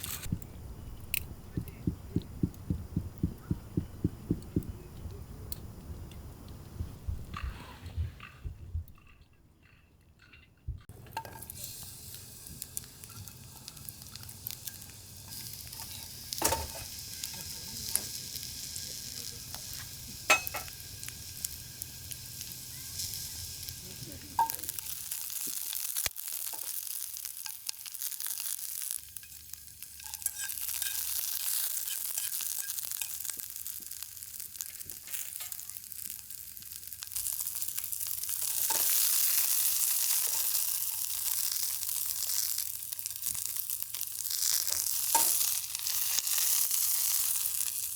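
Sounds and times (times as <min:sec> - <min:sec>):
food sizzling in a pan: 0:11.0 - 0:47.9.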